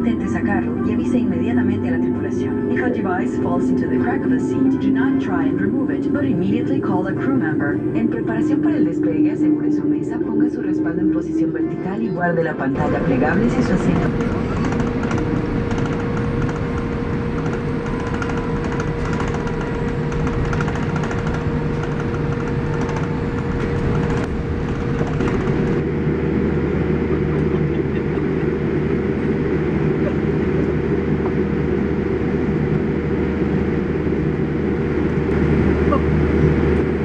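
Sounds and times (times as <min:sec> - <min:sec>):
airliner cabin engine hum: 0:12.7 - 0:37.0
deep heavy rumble: 0:12.7 - 0:37.0.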